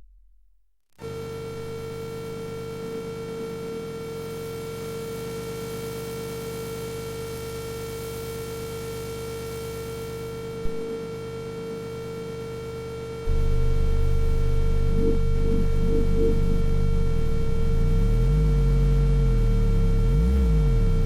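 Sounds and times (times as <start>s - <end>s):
low hum: 0.0s - 0.5s, 13.3s - 21.0s
synthesizer drone: 13.3s - 21.0s.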